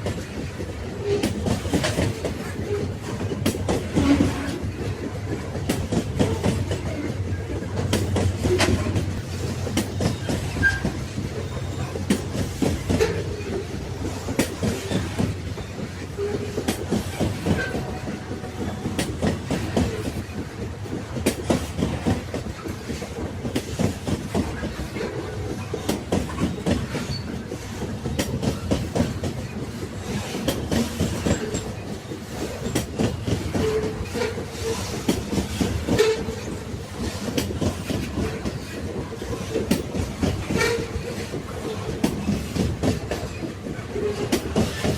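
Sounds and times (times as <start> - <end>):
train wagons rumbling: 0.0 - 44.9
wheels clacking over rail joints: 0.0 - 44.9
wheel squeals: 9.8 - 12.2, 25.2 - 27.4.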